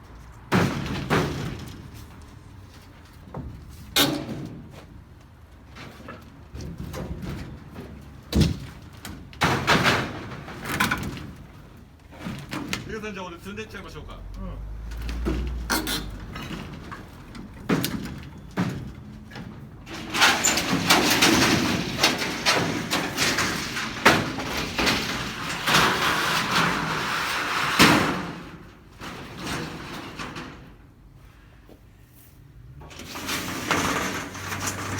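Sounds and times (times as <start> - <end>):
knocks on metal sheets: 0.5 - 1.9, 6.6 - 10.6, 20.2 - 30.6
sheet metal scraping and rattling: 14.7 - 30.9, 32.7 - 34.9.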